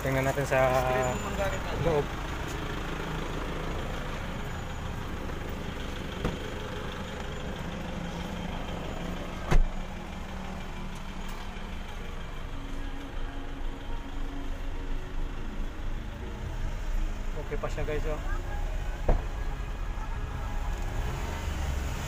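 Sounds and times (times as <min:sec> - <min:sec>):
car engine idling: 0:00.0 - 0:22.0
loud thump: 0:09.5 - 0:09.7, 0:19.0 - 0:19.3.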